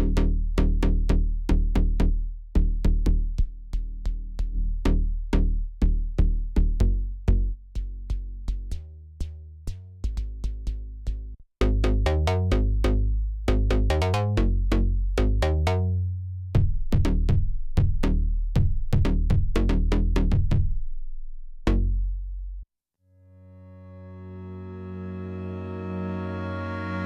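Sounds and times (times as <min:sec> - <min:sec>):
deep synth bass: 0:00.0 - 0:22.6, 0:23.6 - 0:27.0
synthesizer plucked note sequence: 0:11.6 - 0:15.9, 0:23.4 - 0:27.0
sustained synth pad chord: 0:23.2 - 0:27.0.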